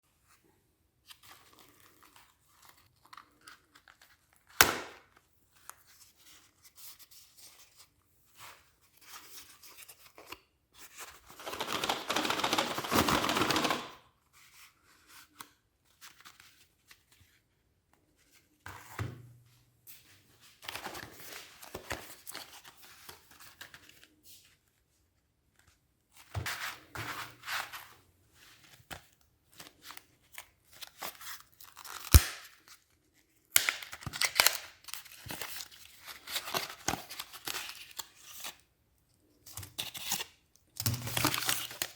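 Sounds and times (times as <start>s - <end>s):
wrappers tearing and crinkling: 30.8s - 32.6s, 33.6s - 38.1s, 40.8s - 41.9s.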